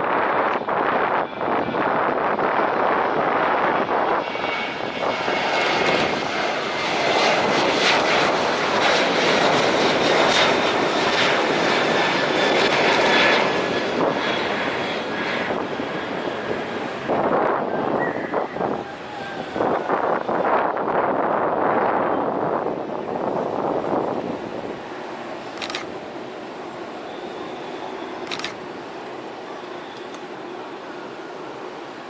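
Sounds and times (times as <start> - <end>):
jet engines running: 0.0 - 32.0
faint high whine: 24.8 - 32.0.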